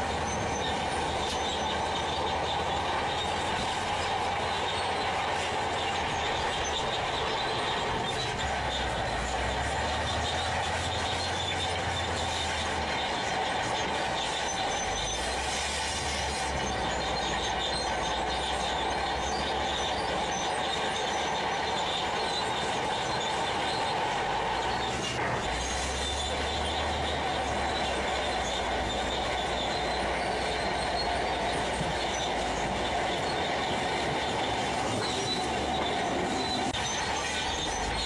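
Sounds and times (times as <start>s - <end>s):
heavy diesel machinery running: 0.0s - 38.0s.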